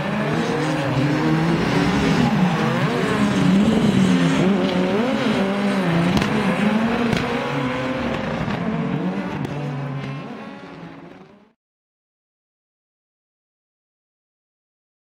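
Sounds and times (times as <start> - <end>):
rally car engine revving: 0.0 - 11.6.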